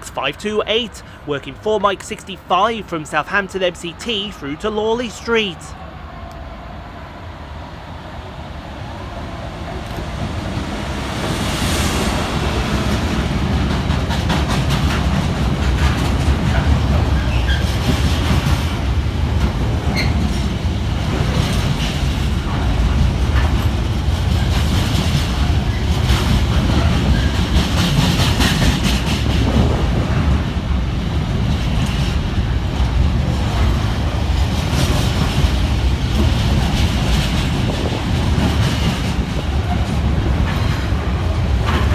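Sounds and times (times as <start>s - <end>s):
wagon wheels clickety-clack: 13.6s - 41.9s.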